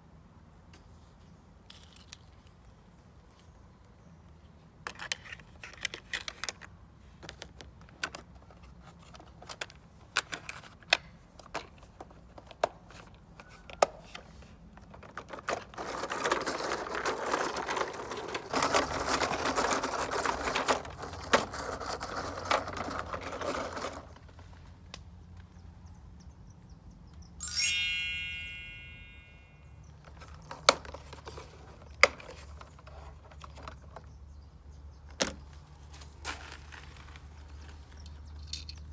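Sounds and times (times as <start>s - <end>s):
toy vehicles rolling and rattling: 4.8s - 24.8s, 29.9s - 34.4s, 35.8s - 38.9s
bright ringing ding: 27.4s - 29.7s.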